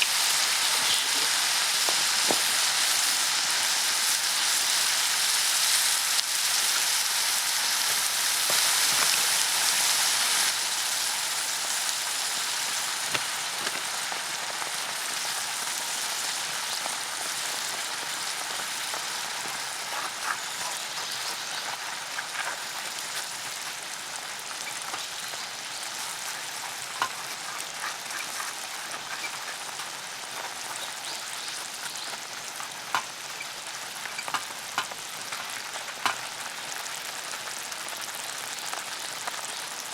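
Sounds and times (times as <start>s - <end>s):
batter sizzling on a griddle: 0.0s - 39.9s
small pops and ticks: 26.9s - 29.9s, 31.6s - 36.2s.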